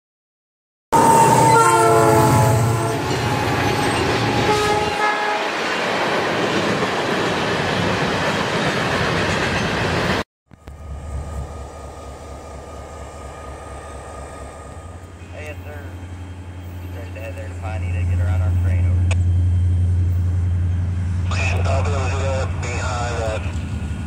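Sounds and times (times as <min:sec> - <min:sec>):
locomotive air horn blasts: 0:01.0 - 0:03.6, 0:04.3 - 0:05.5, 0:10.6 - 0:15.7
diesel locomotive low rumble: 0:01.0 - 0:24.0
train cars rolling past: 0:01.0 - 0:24.0.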